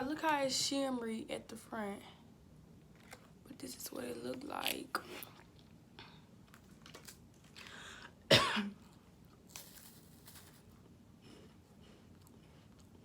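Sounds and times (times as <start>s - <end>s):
crunchy eating sounds: 4.6s - 8.0s, 8.7s - 13.0s
person coughing: 8.3s - 8.8s.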